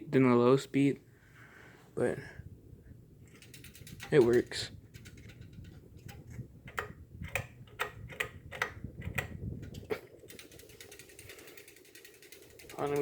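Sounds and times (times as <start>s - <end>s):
pull chain clicking on fan housing: 3.2s - 13.0s.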